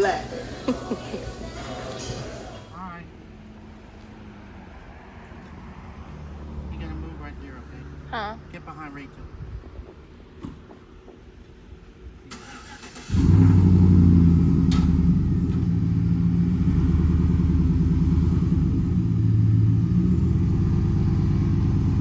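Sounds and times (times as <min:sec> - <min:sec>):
vehicle engine idling: 0:12.4 - 0:22.0.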